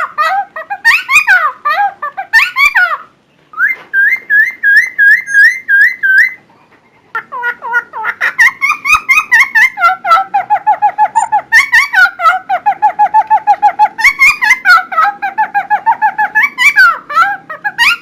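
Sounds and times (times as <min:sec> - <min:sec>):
songbird singing whistled phrases: 0:02.4 - 0:06.4, 0:10.9 - 0:12.0.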